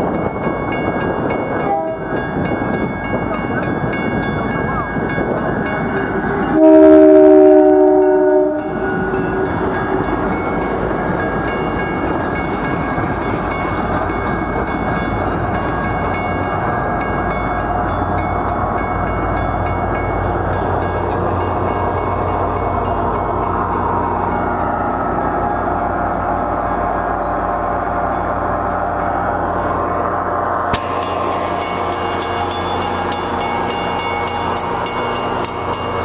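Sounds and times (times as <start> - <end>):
train wheels rumbling on rail: 0.0 - 36.0
train horn blast: 1.6 - 2.2, 6.5 - 9.5.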